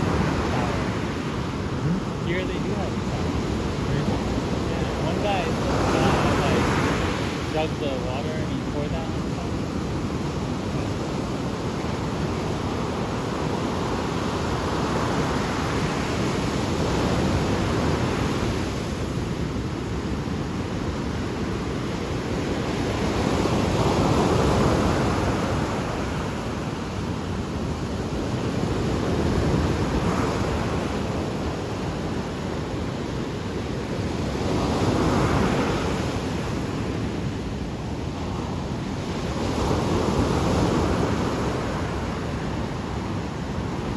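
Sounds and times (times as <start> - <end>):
waves breaking on shore: 0.0 - 43.9.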